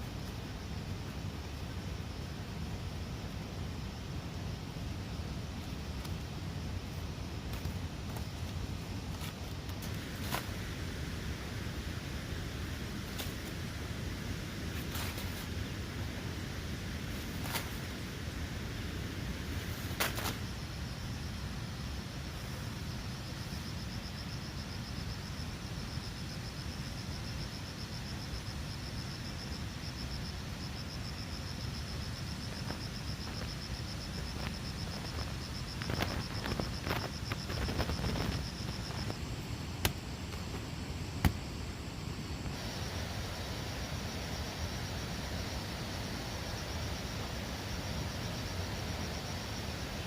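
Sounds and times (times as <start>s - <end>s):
insect trilling: 30.7s - 40.6s
rustling: 34.4s - 39.2s.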